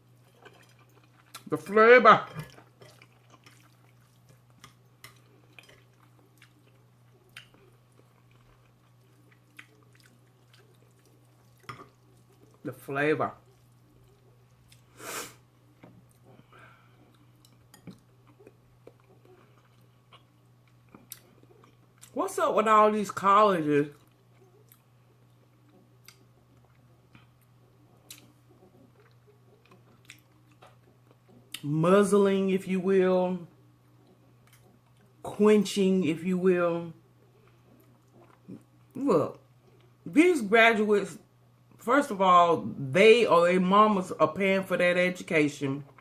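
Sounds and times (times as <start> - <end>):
faint chewing of food: 0.0 - 12.7, 13.4 - 22.2, 23.9 - 31.7, 33.5 - 35.3, 37.0 - 40.1
low steady hum: 0.0 - 46.0.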